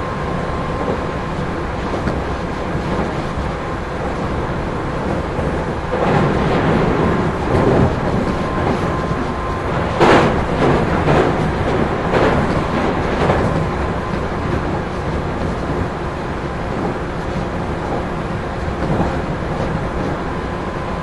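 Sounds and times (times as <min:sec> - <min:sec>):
rail-joint clacks: 0:00.0 - 0:21.0
train wheels rumbling on rail: 0:00.0 - 0:21.0.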